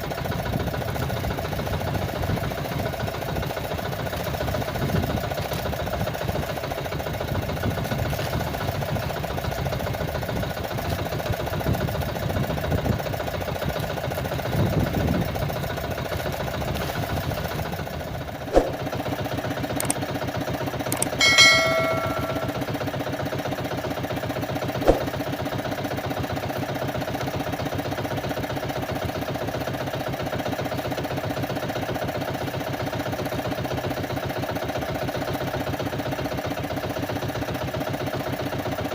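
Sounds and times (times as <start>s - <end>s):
ringing metallic clang: 21.0s - 22.8s
sharp knock: 21.2s - 22.6s.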